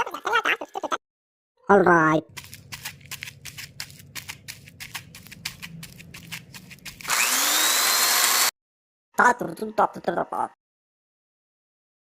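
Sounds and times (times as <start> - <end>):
small electric motor whirring: 5.9 - 8.5.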